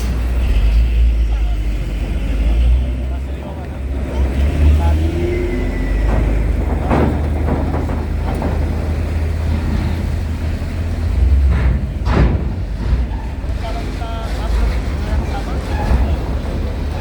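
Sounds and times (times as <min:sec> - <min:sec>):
heavy vehicles rumbling: 0:00.0 - 0:17.0
sharp knocks: 0:05.6 - 0:14.0.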